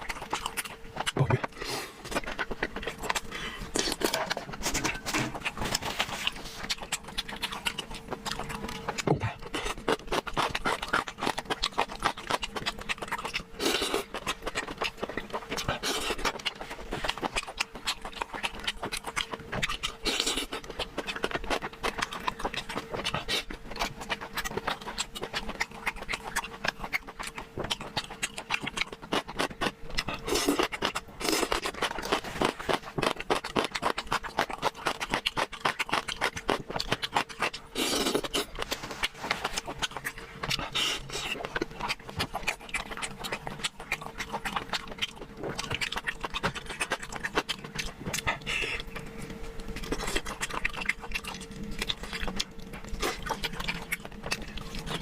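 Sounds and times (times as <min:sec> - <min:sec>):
faint steady hum: 0:00.0 - 0:55.0
wet chewing and smacking: 0:00.0 - 0:55.0
slurps or crunches: 0:29.1 - 0:43.2.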